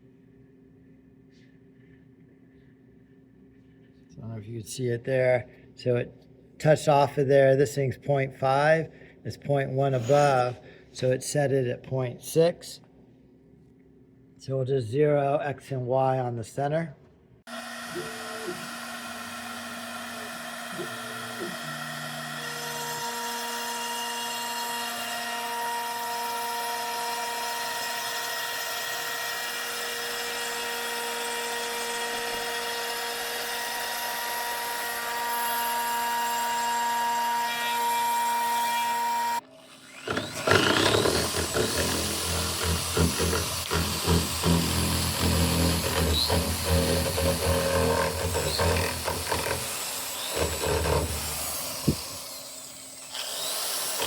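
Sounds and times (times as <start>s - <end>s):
power tool rising whine: 17.5s - 25.2s, 38.8s - 54.0s
router spindle whine: 17.5s - 54.0s.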